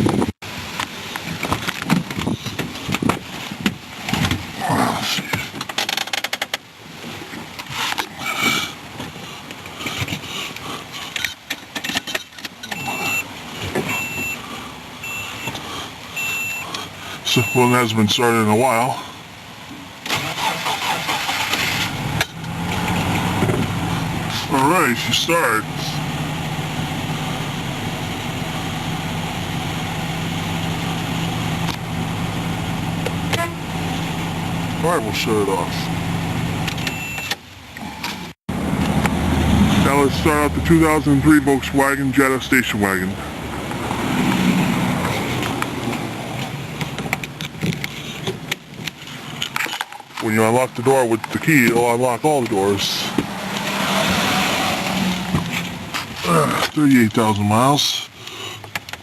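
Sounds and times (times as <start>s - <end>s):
car warning chime beeping: 12.7s - 14.4s, 15.0s - 15.6s, 16.2s - 16.7s, 17.3s - 17.9s, 36.8s - 37.4s
pickup engine idling: 20.8s - 37.0s, 38.5s - 44.2s.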